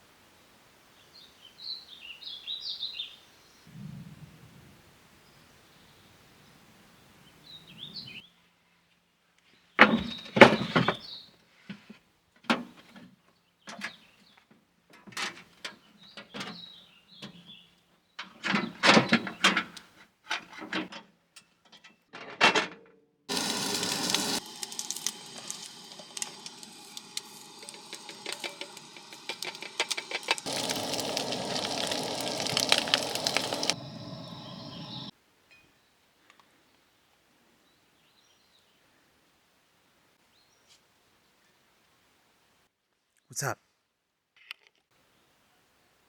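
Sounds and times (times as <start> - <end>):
knocks and clatters of handling: 11.7 - 16.6, 18.2 - 23.0
steady hiss: 23.3 - 35.1
bird chirps: 30.5 - 35.1.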